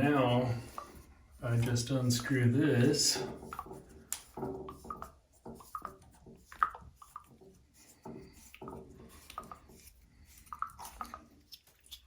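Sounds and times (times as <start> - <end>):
clicks and scrapes of fitting: 3.2 - 12.0.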